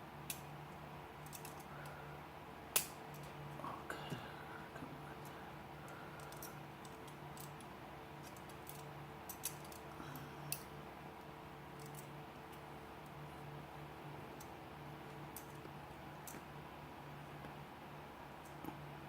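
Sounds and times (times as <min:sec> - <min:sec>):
steady low hum: 0:00.0 - 0:19.0
small metal parts clicking: 0:01.2 - 0:01.7, 0:06.2 - 0:09.9, 0:11.8 - 0:12.1.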